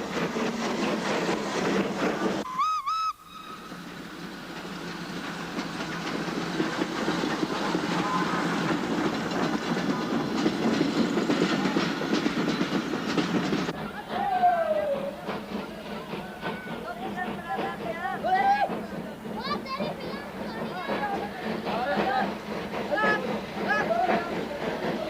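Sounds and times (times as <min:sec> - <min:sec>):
steam train running: 0:00.0 - 0:25.0
steam locomotive whistle toots: 0:02.4 - 0:03.9, 0:07.9 - 0:08.5.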